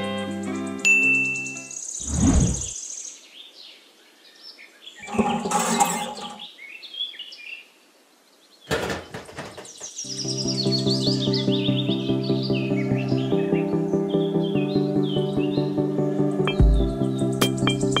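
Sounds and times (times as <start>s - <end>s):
background music: 0.0s - 1.8s, 10.1s - 18.0s
birds chirping: 1.4s - 18.0s
swoosh: 2.0s - 2.7s.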